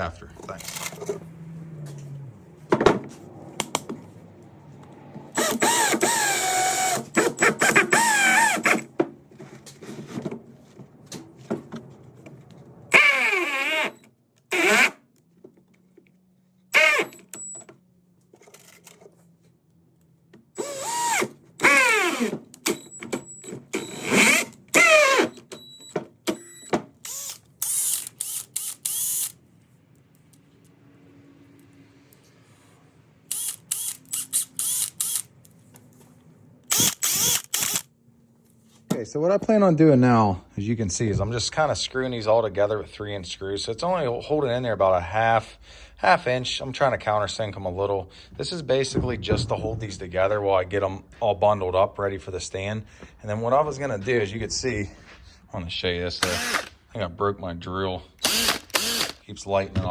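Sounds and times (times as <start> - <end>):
power drill driving screws into wood: 5.3 - 8.9, 12.9 - 15.0, 16.7 - 17.6, 20.6 - 25.6, 26.3 - 29.4, 33.3 - 35.3, 36.7 - 37.9, 56.2 - 56.8, 58.2 - 59.2.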